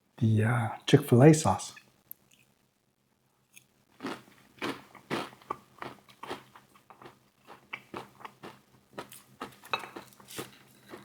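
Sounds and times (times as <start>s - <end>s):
chewing crunchy fried chicken: 4.0s - 11.0s.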